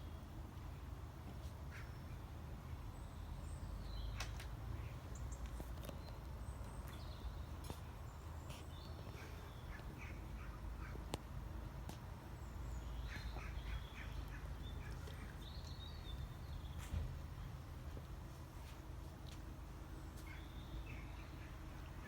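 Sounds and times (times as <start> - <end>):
birds chirping: 3.0 - 17.7.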